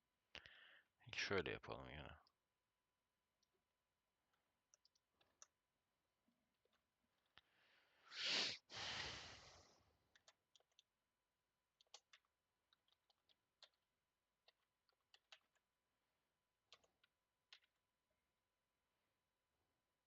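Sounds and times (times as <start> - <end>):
computer keyboard and mouse clicks: 4.7 - 5.6, 10.1 - 10.9, 11.8 - 15.7, 16.7 - 17.8
loud breathy rush of noise: 8.1 - 9.6.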